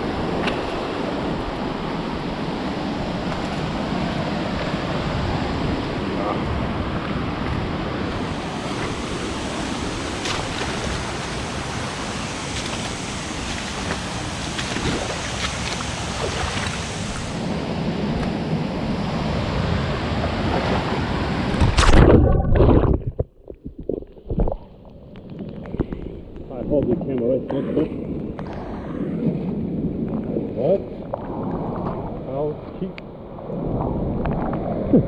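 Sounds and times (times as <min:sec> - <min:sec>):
waterfall roaring: 0:03.7 - 0:17.8.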